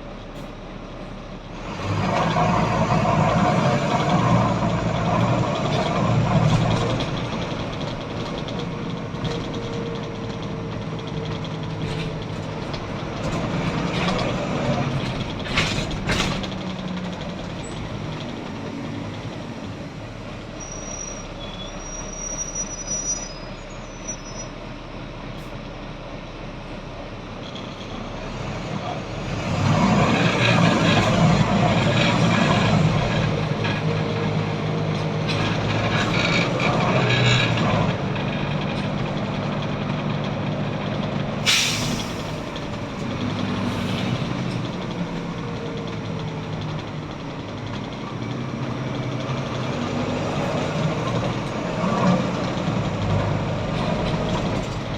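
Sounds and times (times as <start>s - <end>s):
bus diesel engine running: 0.0s - 54.9s
air brake hisses: 41.4s - 42.7s.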